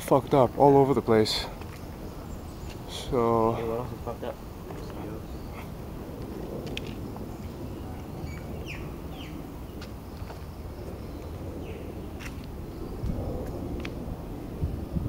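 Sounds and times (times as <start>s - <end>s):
birds chirping: 0.0s - 15.0s
low outdoor rumble: 0.0s - 15.0s.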